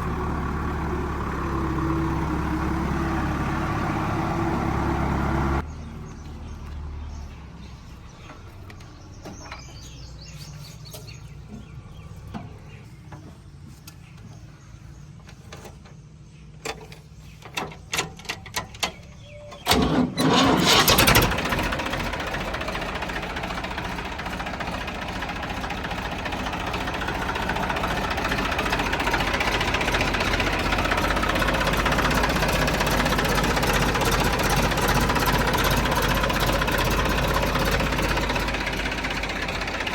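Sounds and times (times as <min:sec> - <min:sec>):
diesel engine running: 0:00.0 - 0:39.9
loud engine burst: 0:19.6 - 0:39.9.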